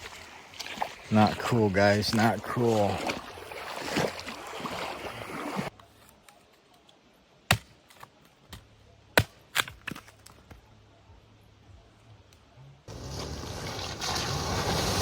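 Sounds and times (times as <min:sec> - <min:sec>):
rushing river water: 0:00.0 - 0:05.7.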